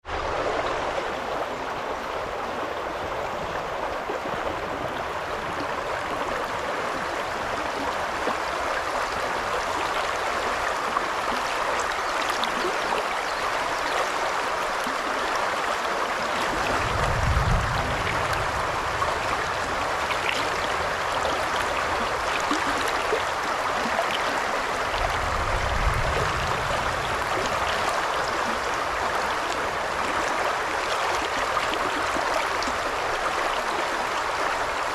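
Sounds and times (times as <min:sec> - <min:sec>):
river babbling over stones: 0:00.0 - 0:34.9
low rumbles: 0:16.6 - 0:20.2.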